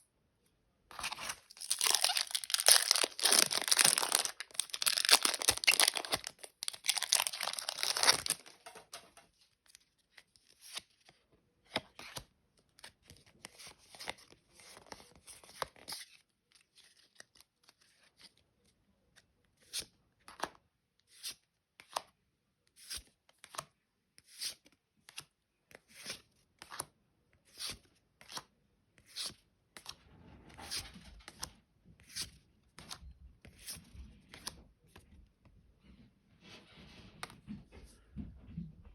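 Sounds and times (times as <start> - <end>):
foil wrapper tearing and crinkling: 1.1 - 8.6.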